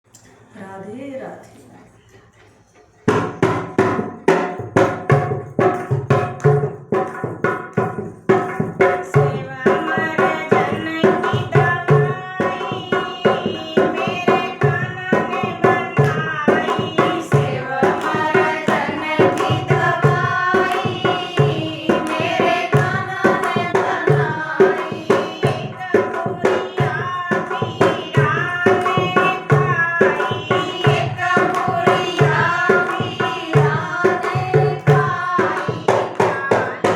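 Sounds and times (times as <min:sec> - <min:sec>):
hand drums beating: 0:03.1 - 0:36.9
woman singing: 0:08.8 - 0:36.9.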